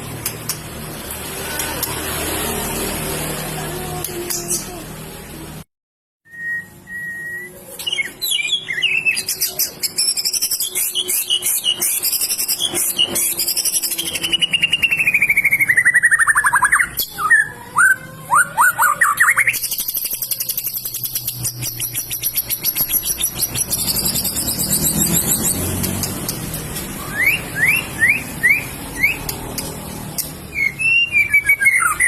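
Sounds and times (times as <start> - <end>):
bird singing varied song: 6.4 - 32.0.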